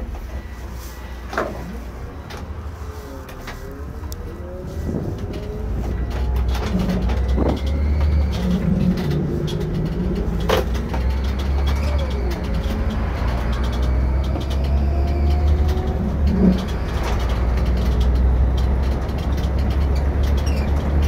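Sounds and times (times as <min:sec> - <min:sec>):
faint whines: 0:00.0 - 0:18.7
coach engine drone: 0:00.0 - 0:21.0
clicks and knocks from vehicle body: 0:04.9 - 0:21.0.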